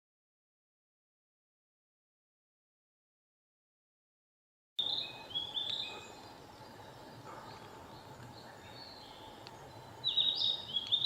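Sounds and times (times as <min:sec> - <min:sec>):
birds singing: 0:04.8 - 0:11.0.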